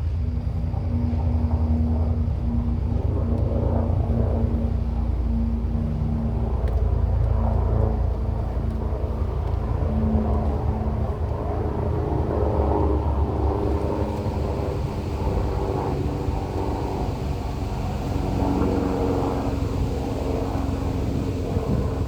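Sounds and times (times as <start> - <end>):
motorboat engine running: 12.5 - 22.0.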